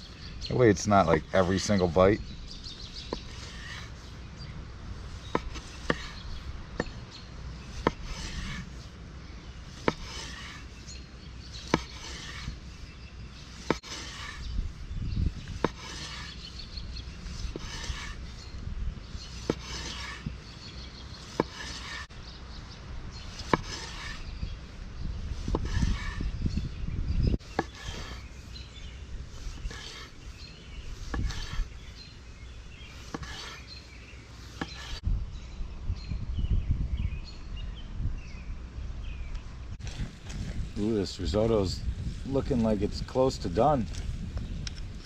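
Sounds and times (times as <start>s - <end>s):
knife rasping through sausage: 2.8s - 4.2s, 5.0s - 7.0s, 7.6s - 9.0s, 9.7s - 14.8s, 15.4s - 18.4s, 19.2s - 22.1s, 23.3s - 24.4s, 25.3s - 26.4s, 27.4s - 31.9s, 32.8s - 35.0s.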